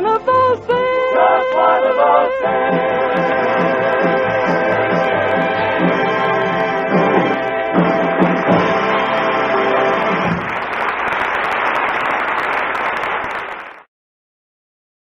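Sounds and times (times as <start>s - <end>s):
orchestra and chorus final notes: 0.9s - 11.4s
audience applause: 2.4s - 13.9s.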